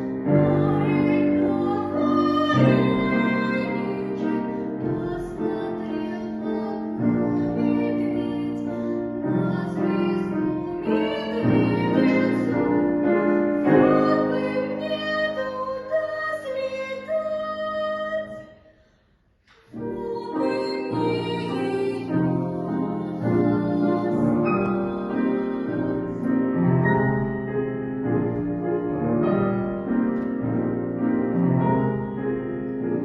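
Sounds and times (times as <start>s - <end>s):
piano accompaniment: 0.0s - 18.4s, 19.5s - 33.0s
girl singing: 0.0s - 18.6s, 19.5s - 26.7s.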